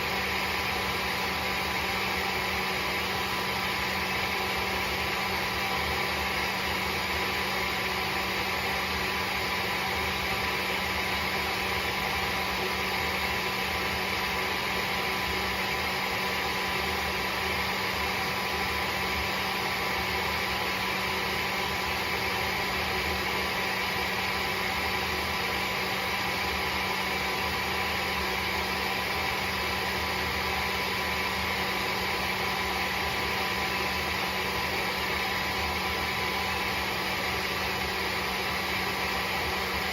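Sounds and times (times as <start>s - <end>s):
vacuum mop motor humming: 0.0s - 39.9s.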